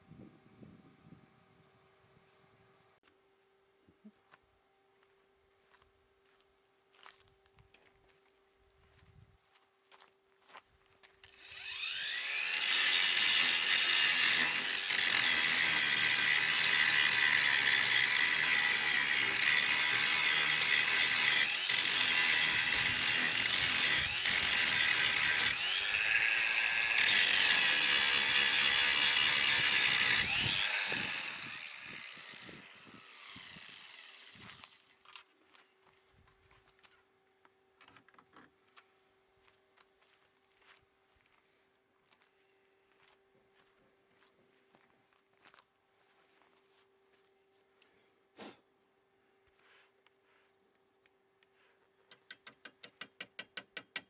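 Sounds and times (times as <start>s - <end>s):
electric power tool motor: 11.2s - 34.9s.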